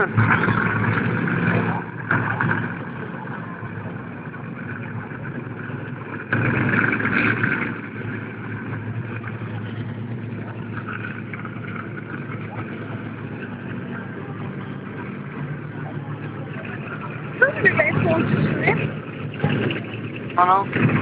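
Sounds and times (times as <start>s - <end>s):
monster truck engine revving: 0.0s - 21.0s.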